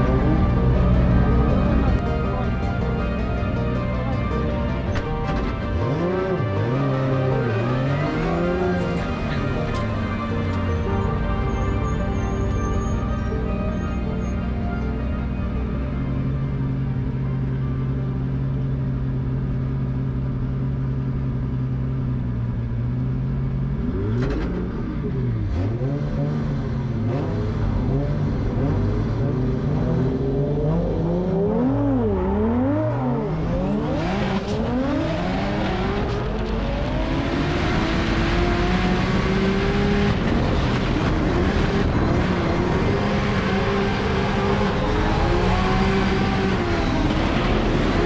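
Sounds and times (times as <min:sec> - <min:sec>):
car engine revving: 0:00.0 - 0:11.2, 0:22.2 - 0:48.0.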